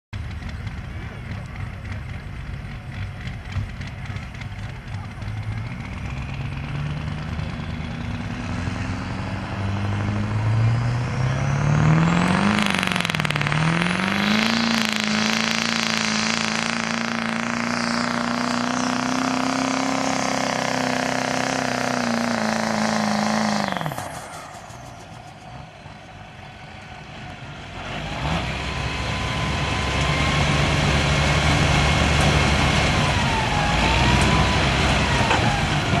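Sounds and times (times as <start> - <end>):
diesel truck engine revving: 0.2 - 36.0
lower-pitched engine running: 0.2 - 36.0.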